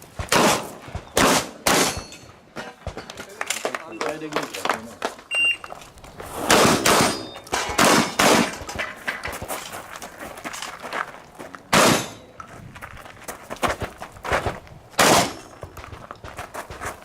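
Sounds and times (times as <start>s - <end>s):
shotgun shots: 0.3s - 2.1s, 6.4s - 8.7s, 11.7s - 12.2s, 15.0s - 15.5s
short high beep: 5.3s - 5.7s.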